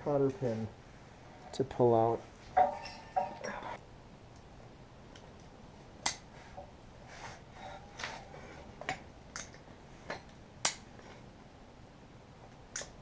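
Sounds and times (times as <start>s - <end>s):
metal tools scraping: 2.6s - 3.8s.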